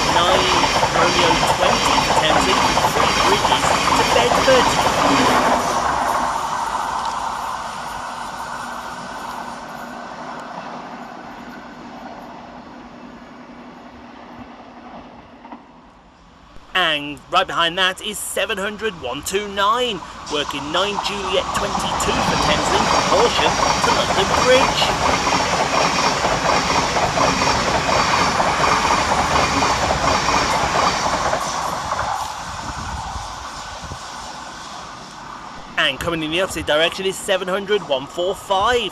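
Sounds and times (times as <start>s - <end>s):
train wheels clattering on rails: 0.0s - 7.4s, 20.4s - 32.5s
electric train passing on rails: 0.0s - 38.9s.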